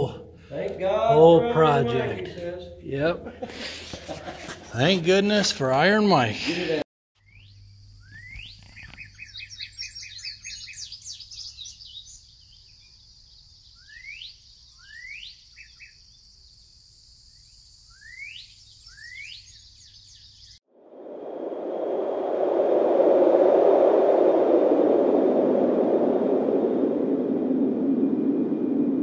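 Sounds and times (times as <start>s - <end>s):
songbirds chirping: 7.2s - 20.6s
rising rushing noise: 20.7s - 29.0s.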